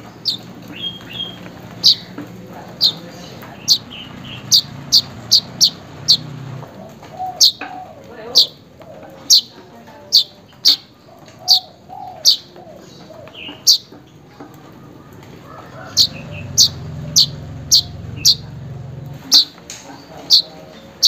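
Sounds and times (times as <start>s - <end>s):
weaver bird chirping: 0.0s - 14.0s, 15.4s - 21.0s
low hum: 15.7s - 19.3s.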